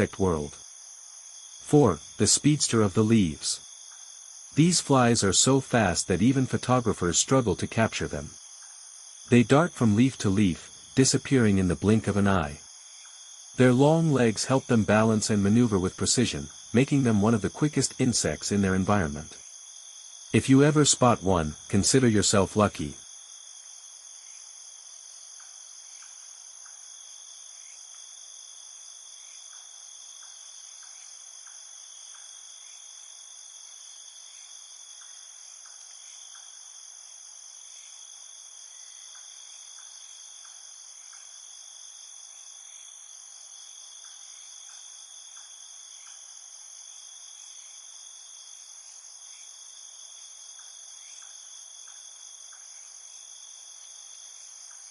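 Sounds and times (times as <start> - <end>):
insects chirring: 0.0 - 54.9
faint ticks: 25.4 - 26.8, 29.5 - 32.4, 34.9 - 36.6, 39.1 - 41.4, 44.0 - 46.2, 50.5 - 52.7.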